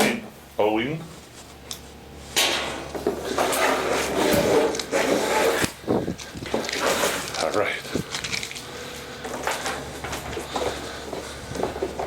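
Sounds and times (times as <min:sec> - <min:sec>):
cardboard rubbing and scraping: 0:03.1 - 0:05.8.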